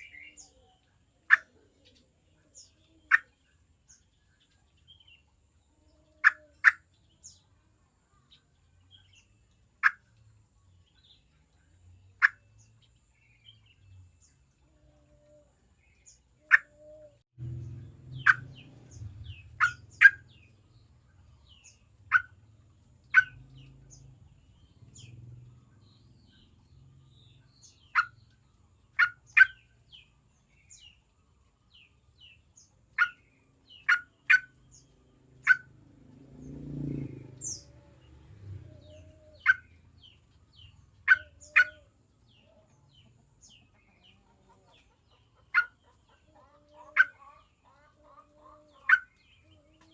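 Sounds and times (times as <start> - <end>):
low rumble: 17.4 - 21.5.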